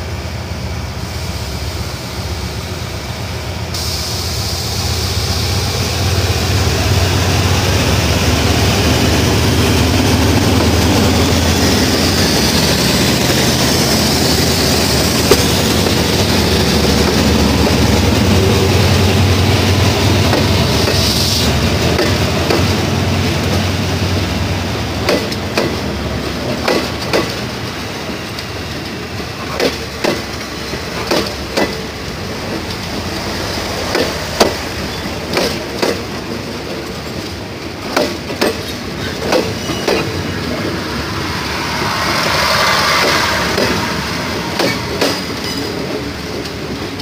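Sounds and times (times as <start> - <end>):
train carriages rolling past: 0.0 - 47.0
rushing swell: 3.8 - 24.8, 38.8 - 46.9.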